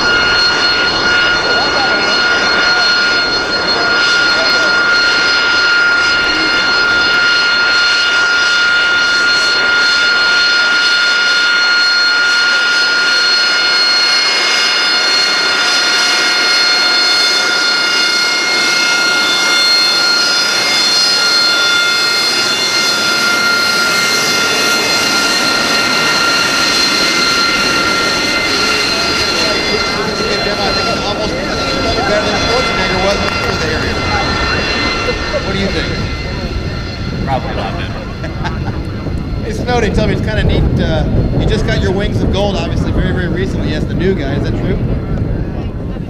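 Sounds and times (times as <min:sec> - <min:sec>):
high turbine whine: 0:00.0 - 0:46.0
jet engine rush: 0:00.0 - 0:46.0.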